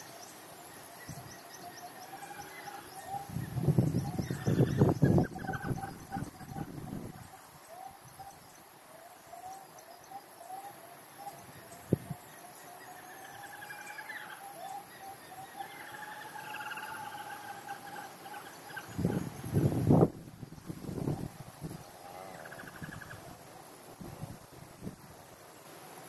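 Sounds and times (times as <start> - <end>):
bird calls: 0.0 - 19.7, 20.5 - 23.4
higher bird calls: 0.8 - 8.4, 12.4 - 19.5, 21.8 - 23.4.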